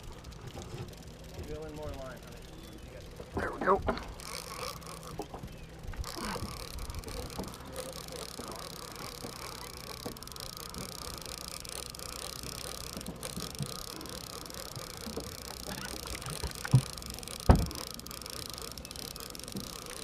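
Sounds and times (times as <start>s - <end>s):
boat engine droning: 0.0s - 20.0s
sharp thumps: 14.8s - 18.3s.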